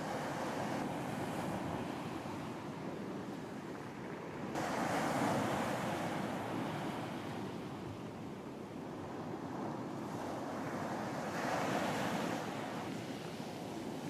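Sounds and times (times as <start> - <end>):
waves surging on a beach: 0.0 - 14.0.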